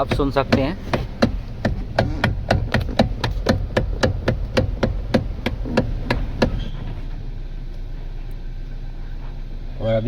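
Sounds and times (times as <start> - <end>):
steering motor knocking: 0.0 - 7.2
low engine hum: 0.0 - 10.0.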